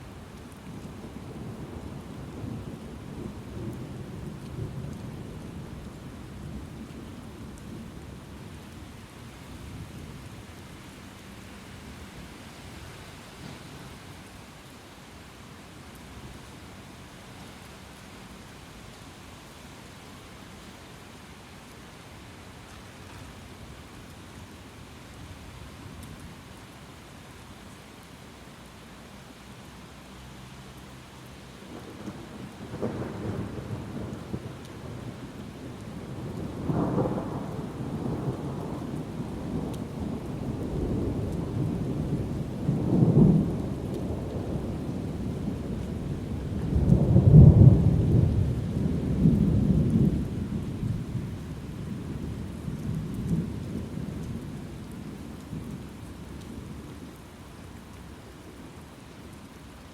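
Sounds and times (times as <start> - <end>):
steady rain: 0.0 - 59.9
thunder rumbling: 31.7 - 56.8.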